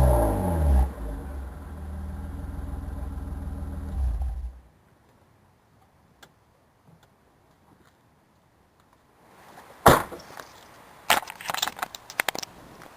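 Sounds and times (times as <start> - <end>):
loud thump: 9.8 - 10.2.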